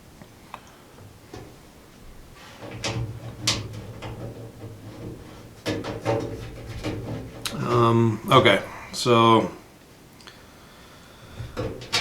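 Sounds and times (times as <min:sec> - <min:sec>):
light clicks and knocks: 0:00.2 - 0:08.8, 0:11.4 - 0:12.0.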